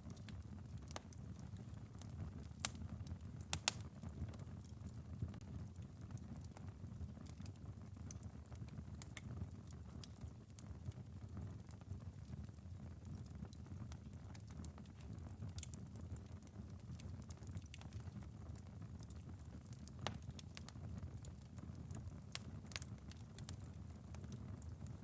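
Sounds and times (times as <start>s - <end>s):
light rain on a window: 0.0s - 25.0s
wood fire crackling: 0.0s - 25.0s.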